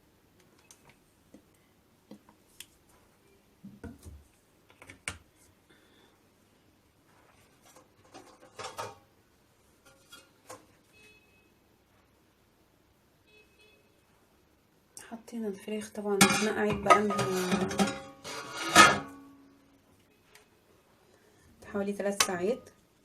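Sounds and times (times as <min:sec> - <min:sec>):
kitchen dish clicks and clatter: 0:08.1 - 0:09.0, 0:16.2 - 0:19.2.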